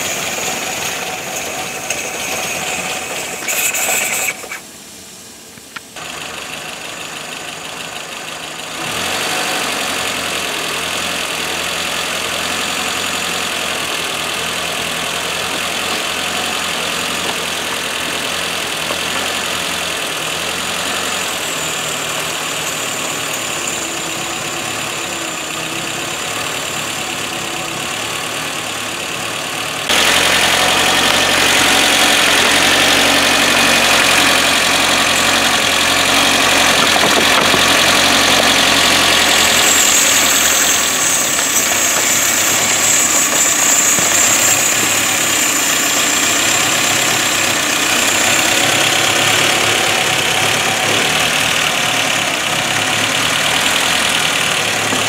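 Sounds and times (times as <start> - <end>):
strong steady hiss: 0.0 - 6.1
car engine idling: 0.0 - 55.0.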